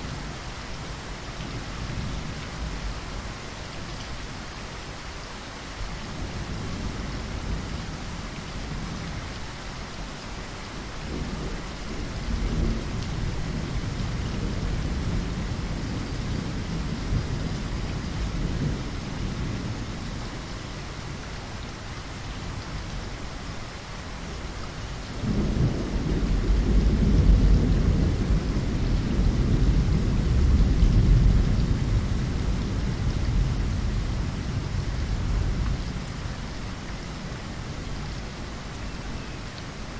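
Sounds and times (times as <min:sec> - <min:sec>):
heavy rain: 0:00.0 - 0:39.9
rolling thunder: 0:11.0 - 0:20.0, 0:25.2 - 0:36.7.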